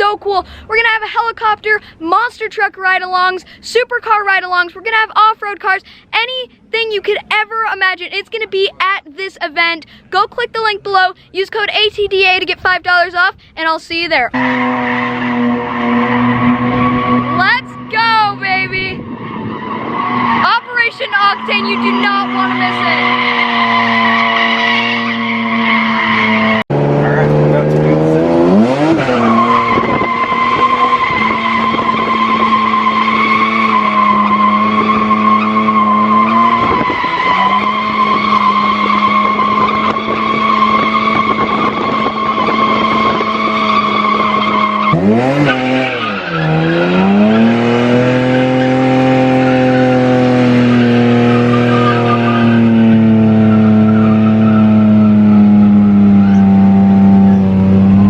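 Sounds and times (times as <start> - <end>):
car engine revving: 14.3 - 58.0
tyres squealing: 14.4 - 26.6, 28.5 - 56.6.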